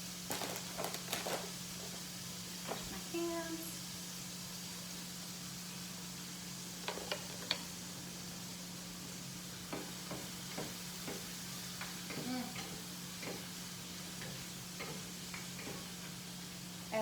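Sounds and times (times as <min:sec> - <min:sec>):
food sizzling in a pan: 0:00.0 - 0:17.0
utensil knocking on pan: 0:09.7 - 0:11.3.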